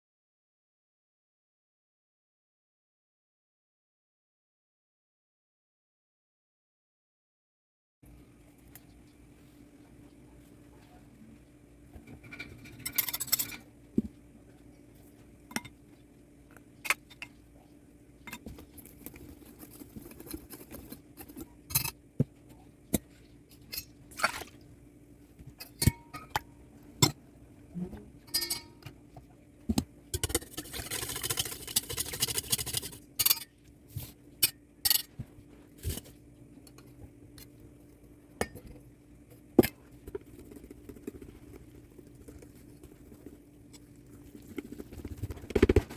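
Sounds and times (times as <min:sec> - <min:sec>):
utensils and dishes clinking: 0:12.2 - 0:13.7, 0:28.3 - 0:28.9.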